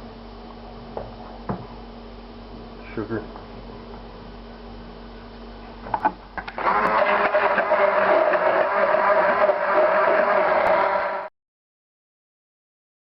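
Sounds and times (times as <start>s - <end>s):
electric blender whining: 6.4s - 11.3s.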